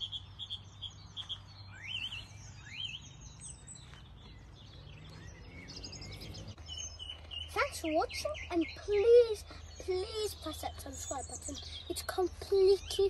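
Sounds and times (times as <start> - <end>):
faint distant bird calls: 0.0 - 13.0.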